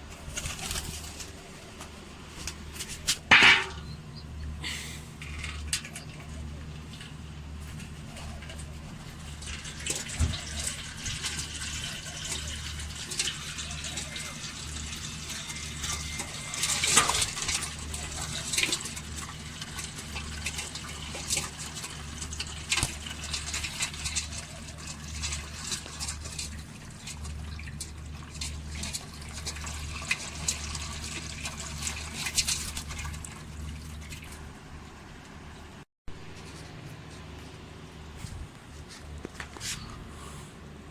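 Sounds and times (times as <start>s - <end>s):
steady low hum: 0.0s - 13.4s, 31.5s - 40.9s
water splashing and trickling: 2.5s - 36.8s.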